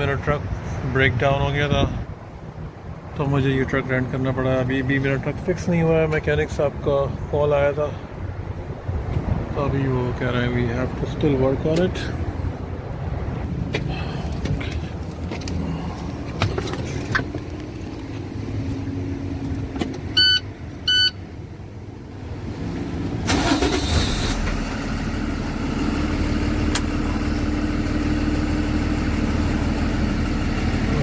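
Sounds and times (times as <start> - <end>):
truck engine cranking and idling: 0.0 - 31.0
short electronic beeps: 20.2 - 21.2.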